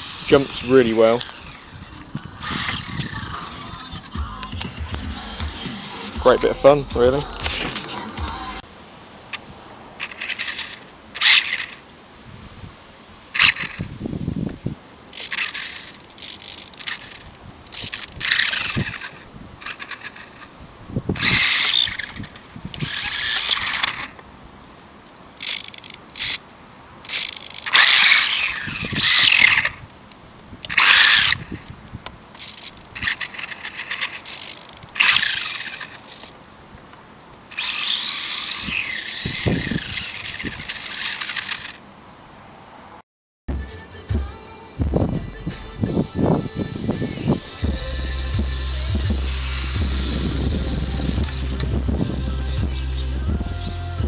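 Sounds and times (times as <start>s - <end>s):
electric motor whining bursts: 0.0s - 8.6s, 15.2s - 20.5s, 21.2s - 24.2s, 27.1s - 29.8s, 30.7s - 31.6s, 32.4s - 36.3s, 37.5s - 41.8s, 46.4s - 54.0s.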